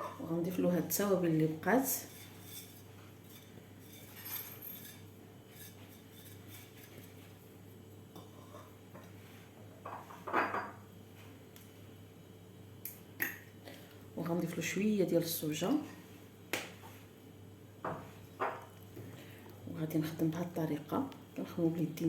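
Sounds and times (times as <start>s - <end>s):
spoon scraping a bowl: 1.9s - 7.4s.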